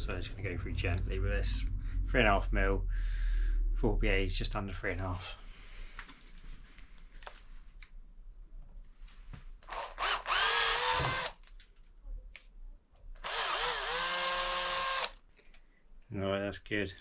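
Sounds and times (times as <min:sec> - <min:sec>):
electric drill whining: 0:09.6 - 0:11.4, 0:13.2 - 0:15.2.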